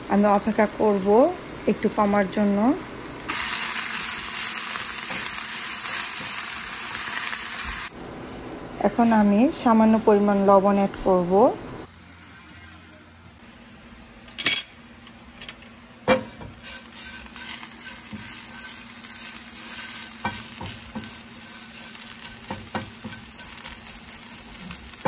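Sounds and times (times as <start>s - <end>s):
leaves sizzling in a frying pan: 0.0s - 13.5s, 16.1s - 25.0s
tongs knocking and scraping pan: 16.0s - 25.0s.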